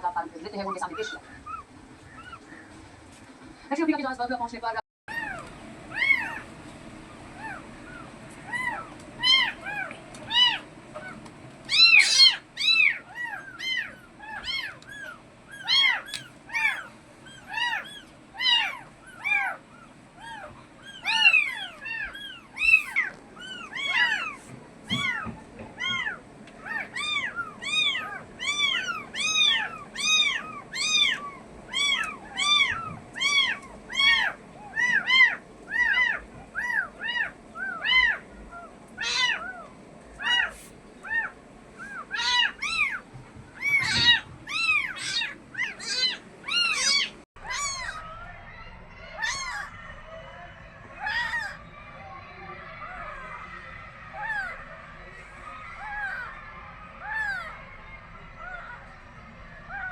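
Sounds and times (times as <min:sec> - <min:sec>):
kittens mewing: 0:00.6 - 0:02.8, 0:05.1 - 0:06.6, 0:07.2 - 0:59.9.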